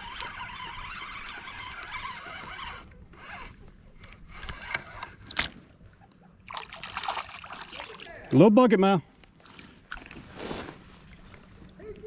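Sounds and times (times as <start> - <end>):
fishing reel cranking: 0.0 - 5.5.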